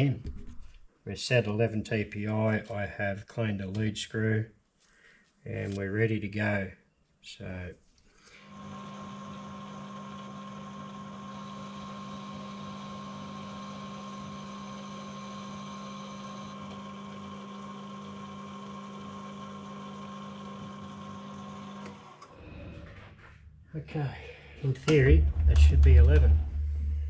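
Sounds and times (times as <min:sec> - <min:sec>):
metal lathe humming: 0:08.4 - 0:22.4.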